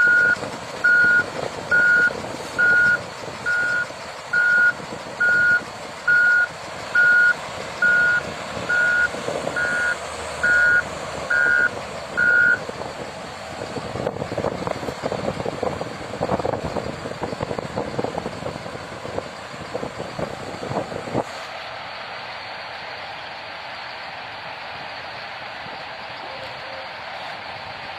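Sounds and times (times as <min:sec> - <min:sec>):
vehicle reversing alarm beeping: 0:00.0 - 0:12.7.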